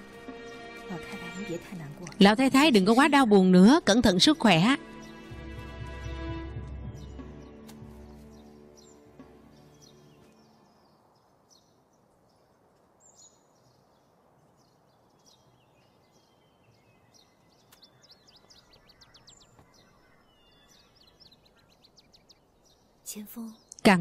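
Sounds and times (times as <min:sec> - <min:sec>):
bird trill: 0:06.8 - 0:11.9, 0:14.6 - 0:23.7
bird chirps: 0:06.8 - 0:24.0.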